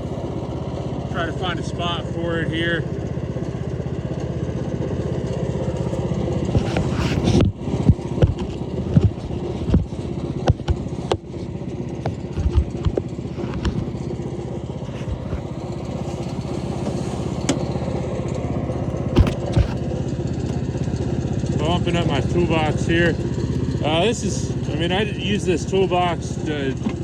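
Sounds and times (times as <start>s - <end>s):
wood chipper engine running: 0.0s - 27.0s
sharp knocks and thumps: 6.5s - 11.2s, 14.9s - 17.7s, 19.1s - 19.8s.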